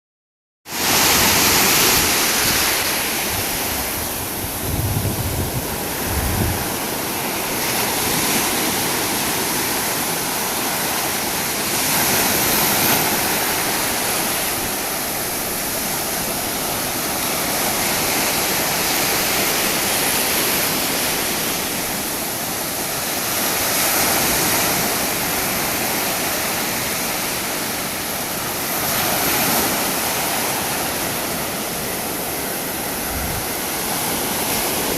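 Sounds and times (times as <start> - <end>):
sea surf breaking on shore: 0.7 - 34.9
wind rumble on microphone: 0.9 - 9.2, 33.0 - 34.9.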